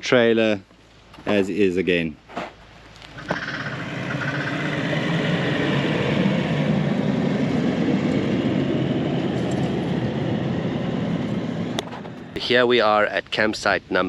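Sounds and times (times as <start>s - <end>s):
road noise: 2.7s - 13.3s
car engine rumble: 3.0s - 12.8s.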